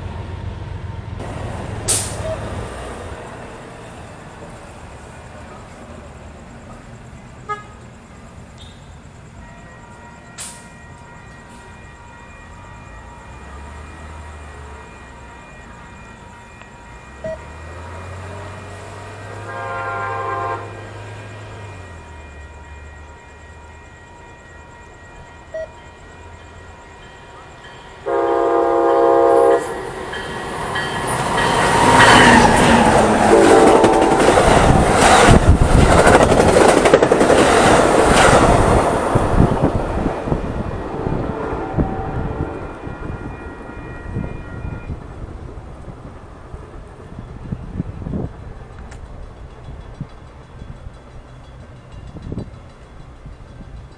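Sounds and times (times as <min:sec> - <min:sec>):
train horn: 0:07.4 - 0:07.9, 0:09.6 - 0:30.0, 0:31.7 - 0:34.6, 0:40.6 - 0:45.0
train wheels clattering over rail joints: 0:30.1 - 0:39.7, 0:47.4 - 0:53.9.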